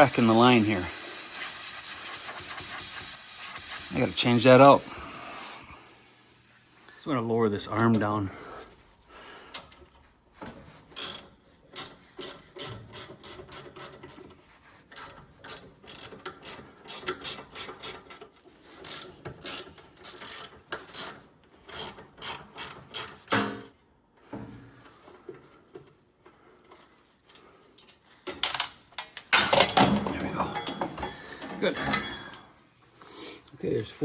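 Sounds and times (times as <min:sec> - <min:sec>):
hose reel ratcheting clicks: 0:00.0 - 0:07.2, 0:10.9 - 0:14.3, 0:15.0 - 0:23.7.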